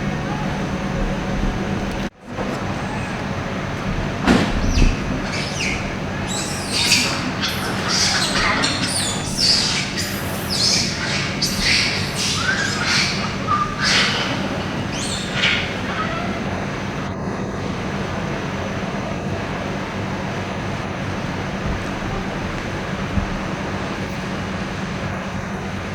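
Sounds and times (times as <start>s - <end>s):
sliding animal calls: 0.0s - 17.1s, 20.9s - 25.2s
steady low hum: 0.0s - 25.9s
animal chirps and squeaks: 2.7s - 3.3s, 4.3s - 16.6s.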